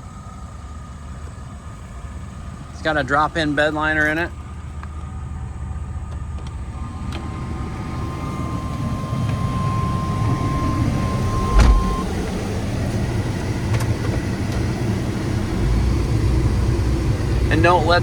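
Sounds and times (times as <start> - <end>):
pickup truck engine running: 0.0 - 18.0
road noise: 0.0 - 18.0
thump: 11.4 - 12.0.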